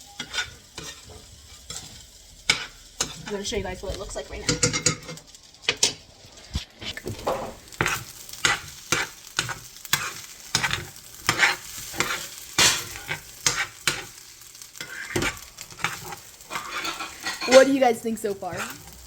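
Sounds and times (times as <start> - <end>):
rice sizzling in a frying pan: 0.0 - 19.0
utensil scraping and knocking pan: 0.2 - 3.4, 6.8 - 14.1, 14.8 - 17.8.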